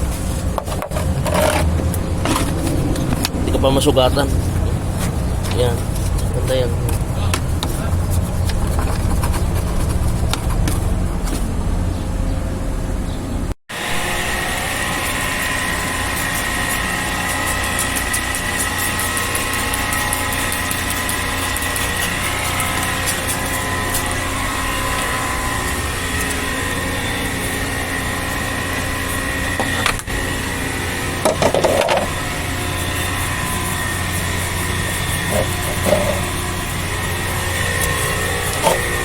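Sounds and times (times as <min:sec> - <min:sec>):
motor humming: 0:13.8 - 0:39.0.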